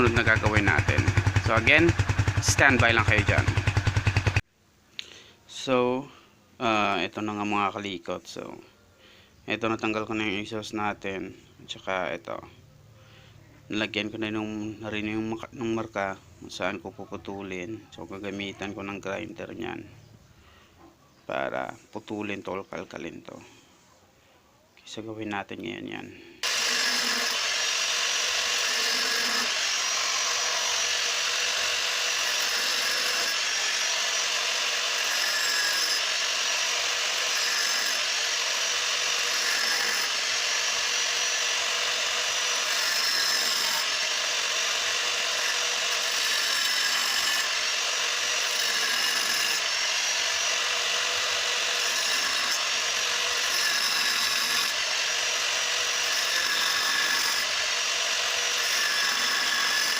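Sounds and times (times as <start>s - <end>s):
angle grinder cutting metal: 0.0s - 4.4s, 26.4s - 59.9s.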